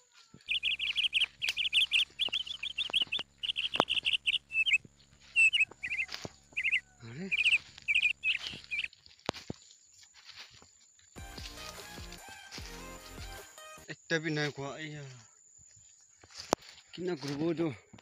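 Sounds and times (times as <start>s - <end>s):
bird singing high chirps: 0.0s - 9.0s.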